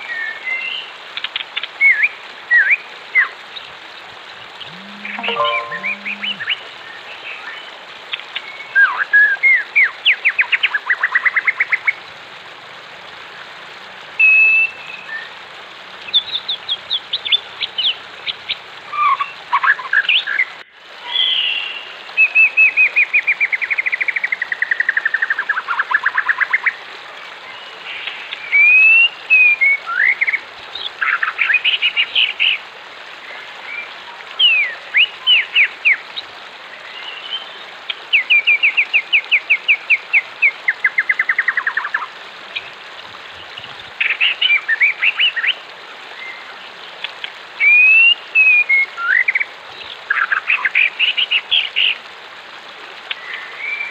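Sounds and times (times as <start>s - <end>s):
running water rushing: 0.0s - 53.9s.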